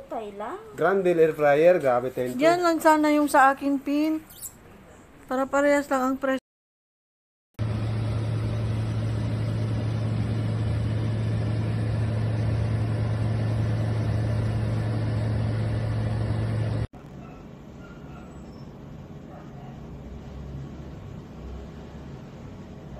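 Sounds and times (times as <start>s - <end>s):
air fryer oven humming: 7.6s - 16.9s.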